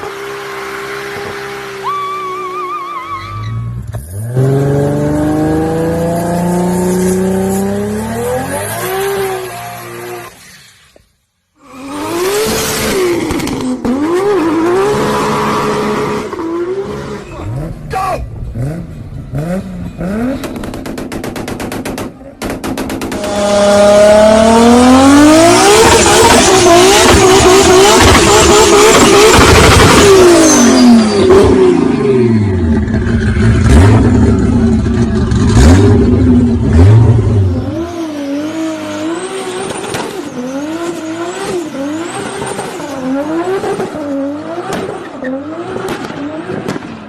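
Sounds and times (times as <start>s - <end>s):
short wavering squeal: 1.8s - 3.9s
car engine accelerating: 11.7s - 21.8s, 22.6s - 46.9s.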